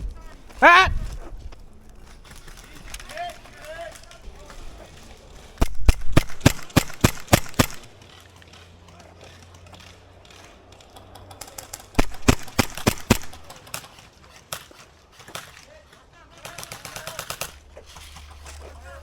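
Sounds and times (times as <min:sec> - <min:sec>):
airsoft gun shots: 0:05.6 - 0:07.9, 0:11.6 - 0:13.6.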